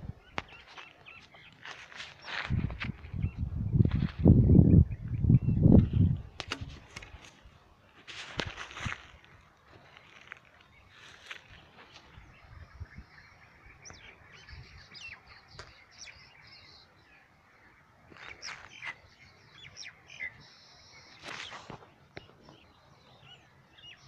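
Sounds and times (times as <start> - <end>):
birds chirping: 0.0 - 7.8, 8.4 - 24.0.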